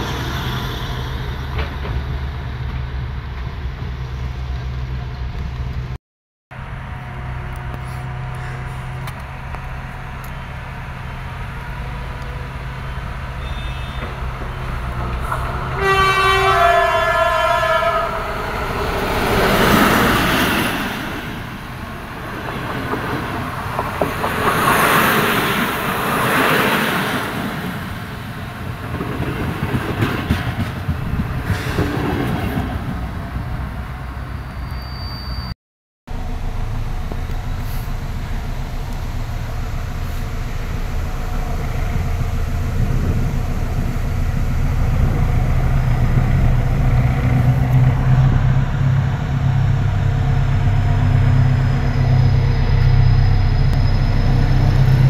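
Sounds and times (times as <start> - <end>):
diesel locomotive engine humming: 0.0 - 34.8, 36.1 - 55.0
train wheels rolling on rails: 7.1 - 34.8
two-note train horn: 15.8 - 18.2.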